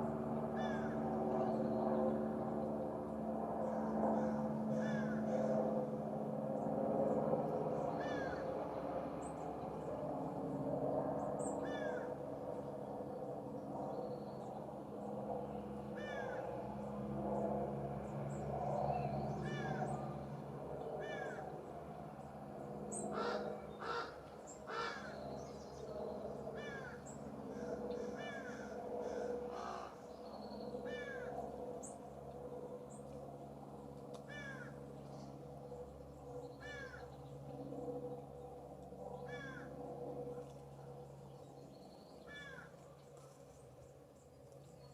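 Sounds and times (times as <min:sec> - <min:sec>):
low background hum: 0:00.0 - 0:44.9
crow cawing: 0:00.6 - 0:01.0, 0:04.2 - 0:05.6, 0:08.0 - 0:08.5, 0:11.6 - 0:12.1, 0:16.0 - 0:16.5, 0:19.4 - 0:20.0, 0:21.0 - 0:21.5, 0:23.1 - 0:25.2, 0:26.6 - 0:30.1, 0:30.9 - 0:31.4, 0:34.3 - 0:34.8, 0:36.6 - 0:37.1, 0:39.3 - 0:39.7, 0:42.3 - 0:42.7.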